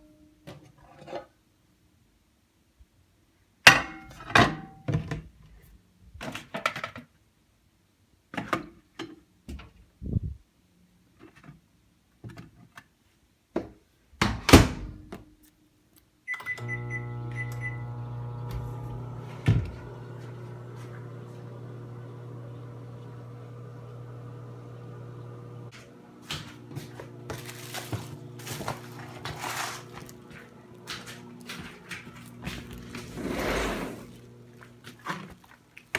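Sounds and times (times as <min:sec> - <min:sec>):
keypad beeps: 0:16.3 - 0:17.8
microwave oven humming: 0:16.3 - 0:35.5.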